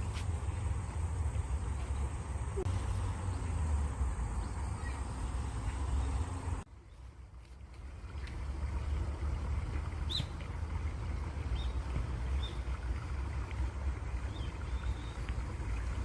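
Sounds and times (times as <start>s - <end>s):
flowing water: 0.0s - 16.0s
faint bird chirp: 4.3s - 7.1s.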